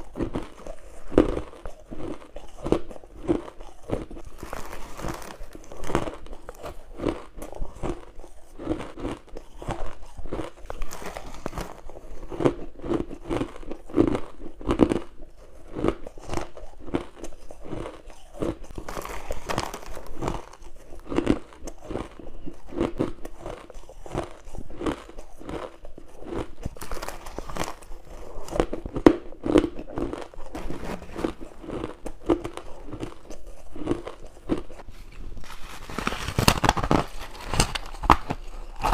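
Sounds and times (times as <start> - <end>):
crunchy bites into ice: 17.7 - 22.1, 35.5 - 38.9.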